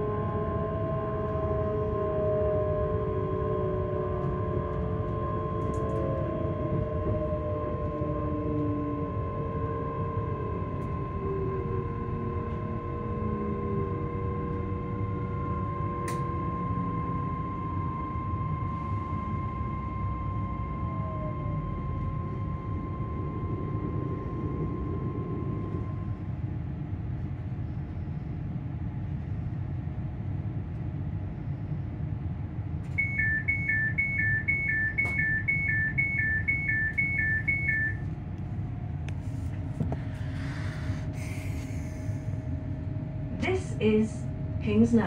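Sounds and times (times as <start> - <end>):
traction motor whine: 0.0 - 26.8
train low rumble: 0.0 - 45.0
door warning beeping: 32.9 - 38.1.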